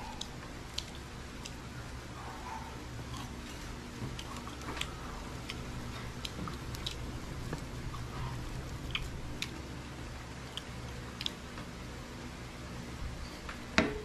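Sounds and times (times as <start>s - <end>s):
chewing: 0.0s - 9.6s, 10.3s - 11.5s
steady low hum: 0.0s - 14.0s.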